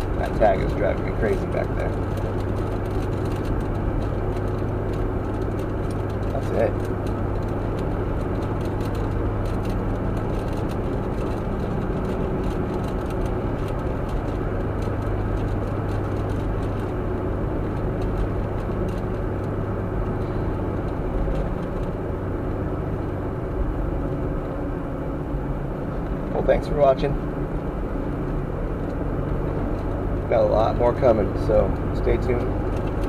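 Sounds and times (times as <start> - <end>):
light rattles: 0.0 - 23.2
vehicle engine and road noise: 0.0 - 33.0.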